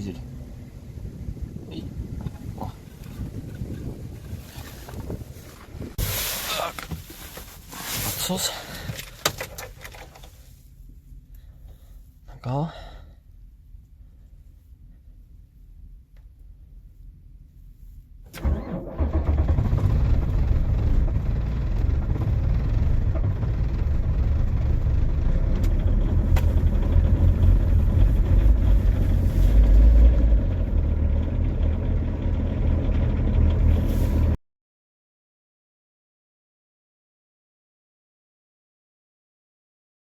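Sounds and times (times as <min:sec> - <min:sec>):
diesel engine starting and idling: 0:18.3 - 0:34.4.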